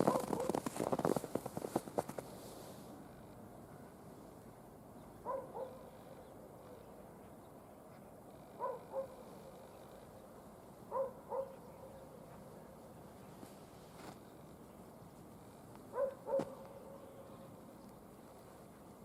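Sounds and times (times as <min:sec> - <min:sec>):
distant dog barking: 0:00.0 - 0:00.6, 0:05.2 - 0:06.9, 0:08.5 - 0:09.7, 0:10.9 - 0:12.8, 0:15.9 - 0:17.5.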